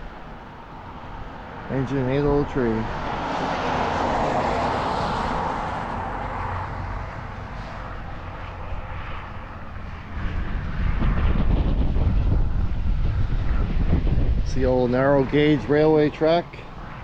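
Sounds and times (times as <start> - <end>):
vehicle passing: 0.0 - 17.0
wind buffeting microphone: 0.0 - 17.0.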